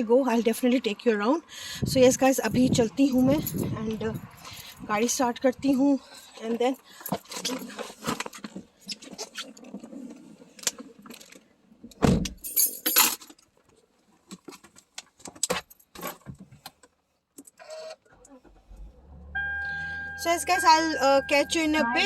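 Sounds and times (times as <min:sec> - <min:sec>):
car keys jangling: 0:02.5 - 0:05.8, 0:12.2 - 0:13.4.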